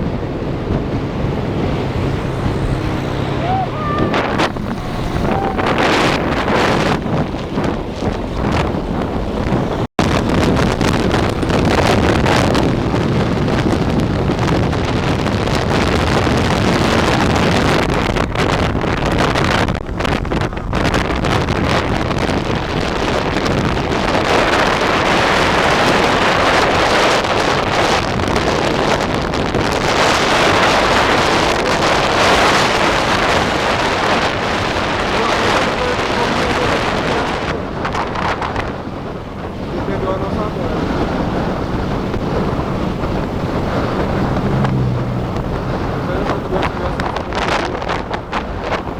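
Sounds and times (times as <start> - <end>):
moving train running noise: 0.0 - 18.4, 29.0 - 48.9
wind buffeting microphone: 0.0 - 48.9.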